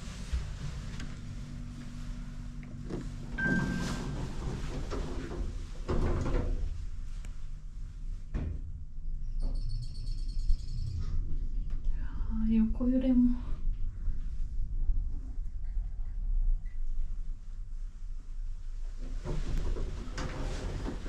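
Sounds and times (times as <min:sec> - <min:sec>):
elevator doors sliding: 0:00.0 - 0:07.5, 0:18.9 - 0:21.0
low machine hum: 0:00.0 - 0:21.0.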